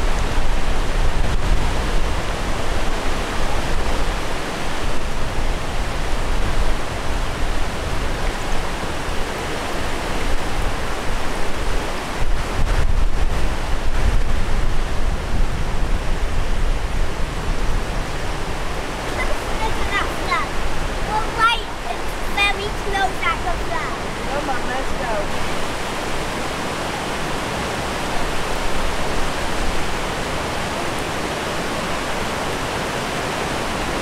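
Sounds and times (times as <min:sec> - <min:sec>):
river rushing: 0:00.0 - 0:34.0.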